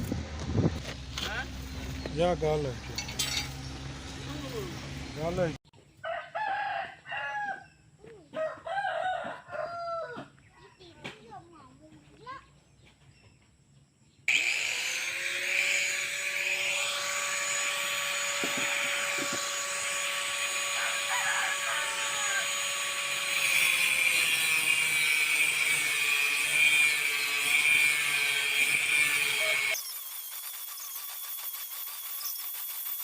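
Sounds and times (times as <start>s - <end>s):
angle grinder on metal: 2.2s - 5.6s, 14.3s - 33.0s.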